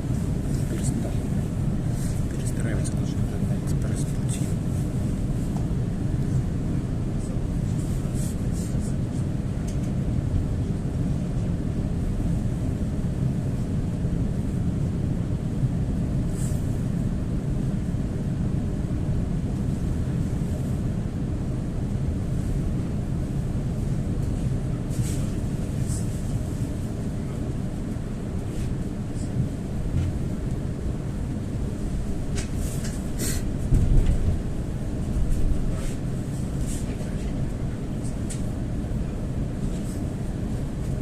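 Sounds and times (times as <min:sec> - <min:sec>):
train wheels rumbling on rails: 0:31.6 - 0:41.0.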